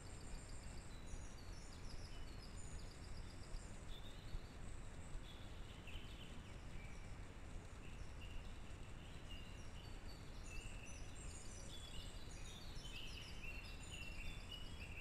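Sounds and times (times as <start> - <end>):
faint songbirds singing: 0.0 - 15.0
woodland ambience hiss: 0.0 - 15.0.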